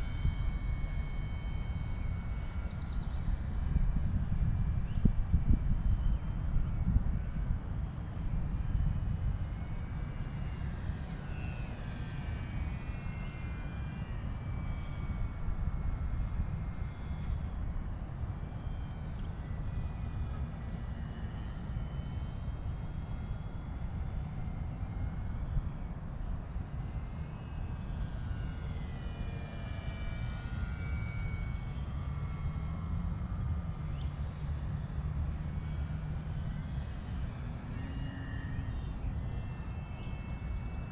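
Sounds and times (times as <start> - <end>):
wind rumble on microphone: 0.0 - 10.7
model airplane motor whine: 0.0 - 40.9.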